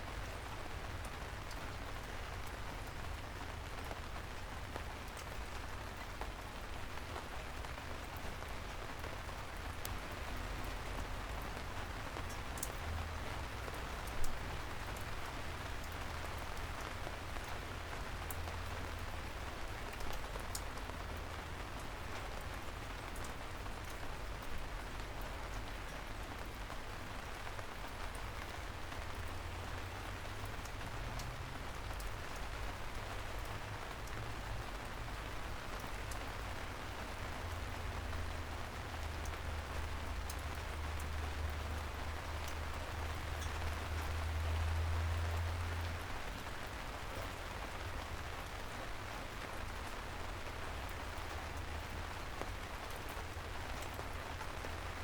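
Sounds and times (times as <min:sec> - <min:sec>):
rain drips ticking: 0:00.0 - 0:55.0
rain hissing: 0:26.4 - 0:55.0.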